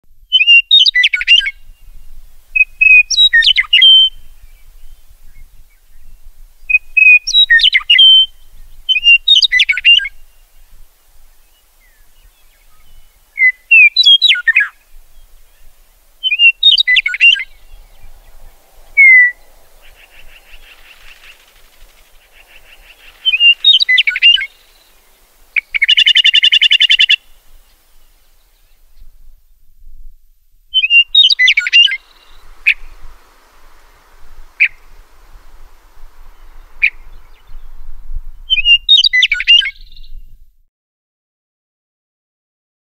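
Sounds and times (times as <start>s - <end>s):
songbirds chirping: 0.1s - 40.4s
buzzy bird trill: 16.2s - 27.4s, 30.8s - 40.0s.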